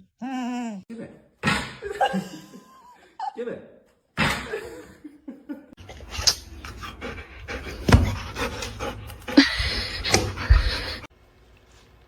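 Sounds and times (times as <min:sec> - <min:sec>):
dog panting: 0:06.0 - 0:11.1.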